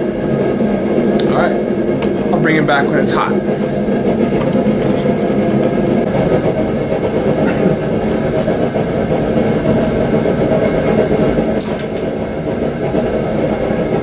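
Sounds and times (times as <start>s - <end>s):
forge roaring: 0.0s - 14.0s.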